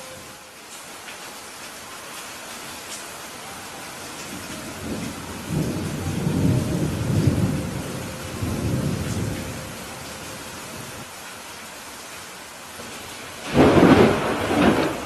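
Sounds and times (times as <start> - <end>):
steady rain hiss: 0.0 - 15.0
rolling thunder: 4.3 - 9.9, 13.4 - 15.0.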